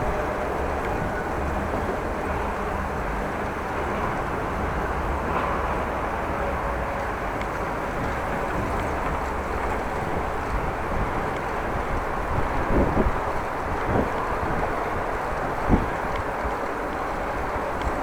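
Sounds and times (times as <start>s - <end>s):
wind rushing over microphone: 7.1s - 18.0s.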